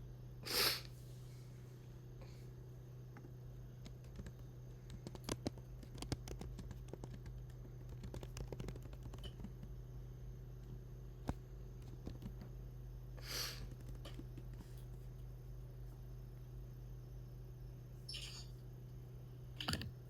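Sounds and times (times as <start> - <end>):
low electrical hum: 0.0 - 20.0
typing on computer keyboard: 3.8 - 9.7.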